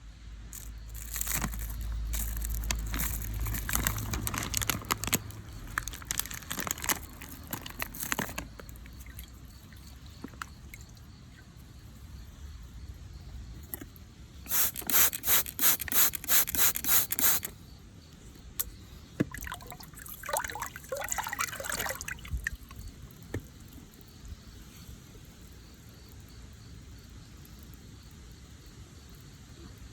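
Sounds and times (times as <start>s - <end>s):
spray bottle squirts: 14.5s - 17.5s.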